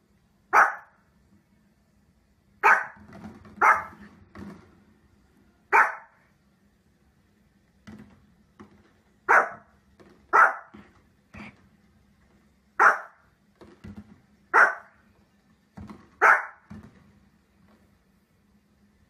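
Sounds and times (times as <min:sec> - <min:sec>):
small dog barking: 0:00.5 - 0:01.0, 0:02.6 - 0:03.0, 0:03.6 - 0:04.0, 0:05.7 - 0:06.2, 0:09.3 - 0:09.7, 0:10.3 - 0:10.8, 0:12.8 - 0:13.2, 0:14.5 - 0:15.0, 0:16.2 - 0:16.7.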